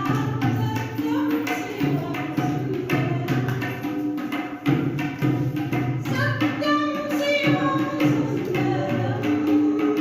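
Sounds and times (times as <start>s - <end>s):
percussion beat: 0.0s - 10.0s
person singing: 6.8s - 10.0s.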